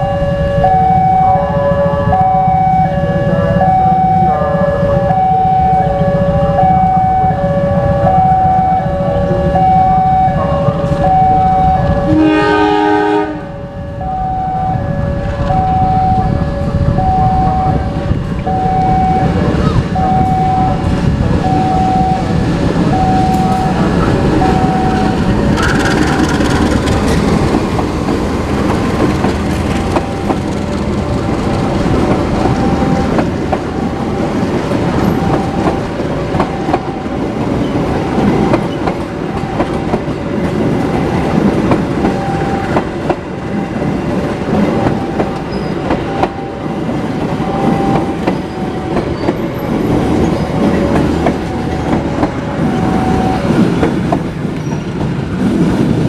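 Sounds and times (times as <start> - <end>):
train wheels clattering over rails: 22.3 - 56.0.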